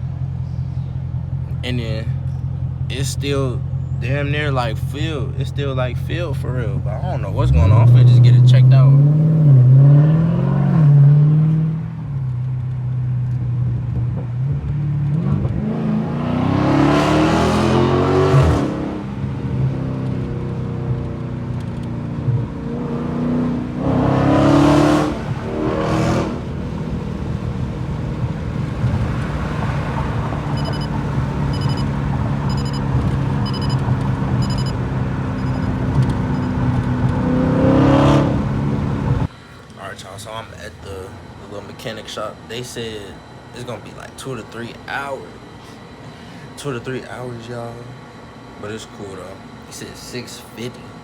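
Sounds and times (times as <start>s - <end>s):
car engine idling and revving: 0.0s - 39.3s
repeating electronic chime: 30.5s - 33.8s, 34.4s - 34.8s, 35.4s - 36.6s.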